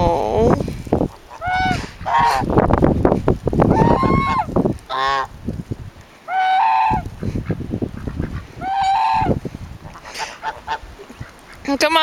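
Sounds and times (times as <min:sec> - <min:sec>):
geese honking: 0:01.0 - 0:02.5, 0:03.7 - 0:05.4, 0:06.2 - 0:12.0.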